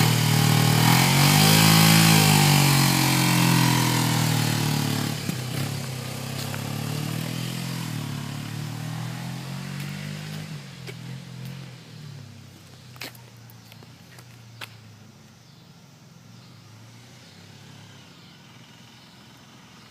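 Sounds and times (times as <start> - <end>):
motorcycle engine pulling away: 0.0 - 15.1, 16.3 - 19.9.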